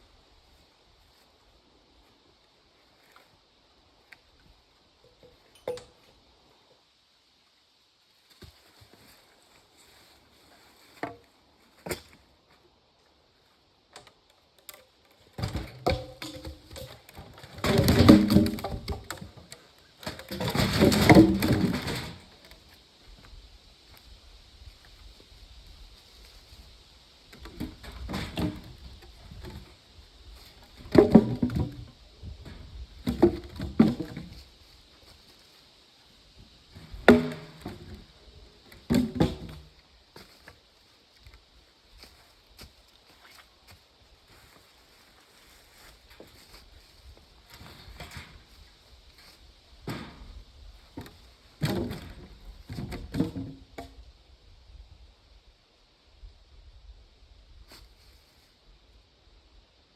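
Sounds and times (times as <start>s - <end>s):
wood knocking and clattering: 15.4s - 22.6s, 27.4s - 29.7s, 30.5s - 34.4s, 36.8s - 38.1s, 38.7s - 39.7s, 51.0s - 53.9s.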